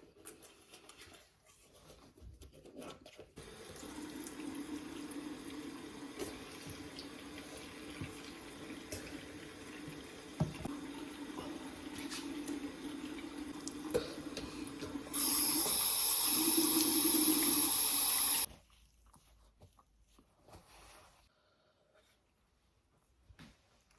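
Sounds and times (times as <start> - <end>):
water running: 3.4 - 18.5.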